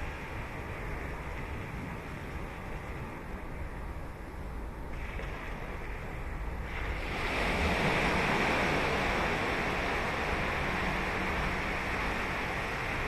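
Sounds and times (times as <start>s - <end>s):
ocean surf breaking: 6.9s - 13.0s.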